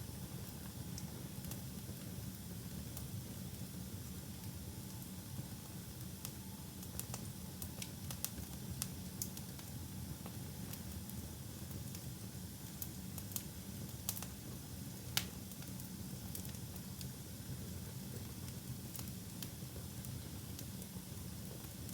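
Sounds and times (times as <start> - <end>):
wood fire crackling and popping: 6.2 - 10.9, 12.8 - 14.4, 15.0 - 21.9.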